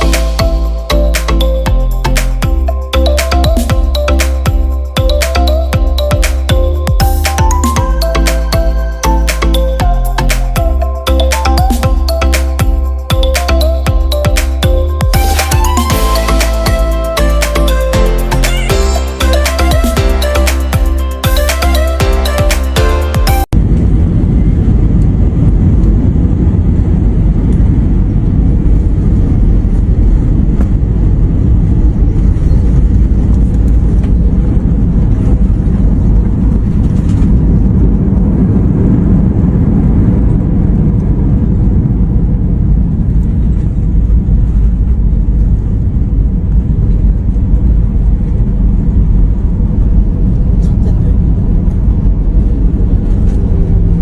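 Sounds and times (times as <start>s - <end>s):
airliner cabin engine rumble: 23.4s - 54.0s.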